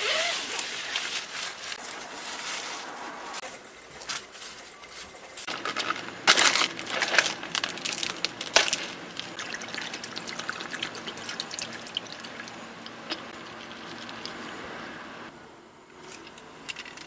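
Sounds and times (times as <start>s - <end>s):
liquid pouring and splashing: 6.7s - 14.8s
small trickles and drips: 7.7s - 14.8s.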